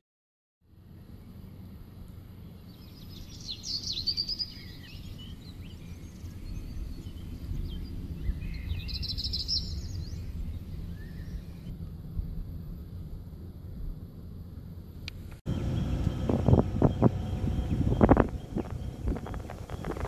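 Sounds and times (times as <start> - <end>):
steady low rumble: 0.7 - 20.0
small birds twittering: 2.6 - 11.7, 15.5 - 20.0.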